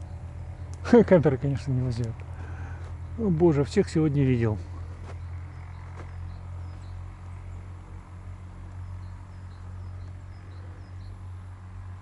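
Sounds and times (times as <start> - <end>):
small bird chirping: 0.0 - 1.0, 4.4 - 12.0
steady low hum: 0.0 - 12.0.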